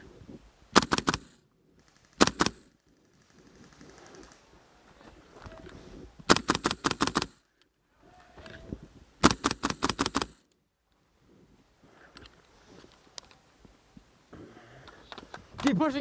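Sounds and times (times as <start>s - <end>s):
airsoft gun firing bursts: 0.7s - 3.4s, 6.3s - 7.4s, 9.2s - 10.5s.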